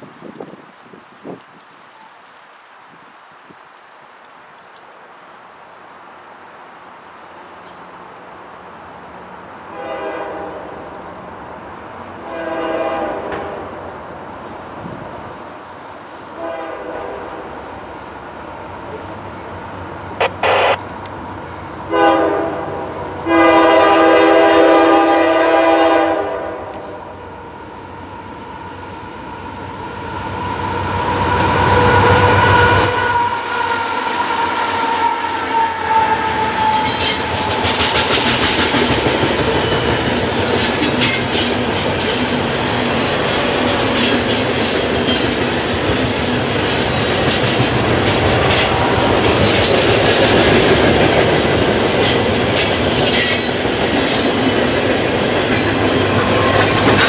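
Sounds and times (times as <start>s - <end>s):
locomotive passing with whine: 7.9s - 57.0s
locomotive horn blasts: 9.7s - 10.9s, 12.2s - 13.6s, 16.4s - 17.2s, 20.2s - 20.8s, 21.9s - 27.1s.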